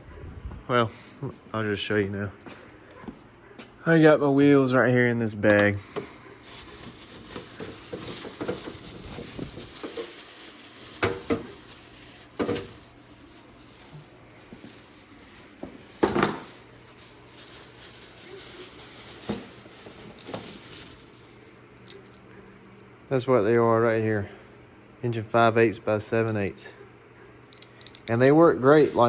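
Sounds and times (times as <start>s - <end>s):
scratchy rustle of bag: 6.4s - 21.5s, 28.6s - 29.0s.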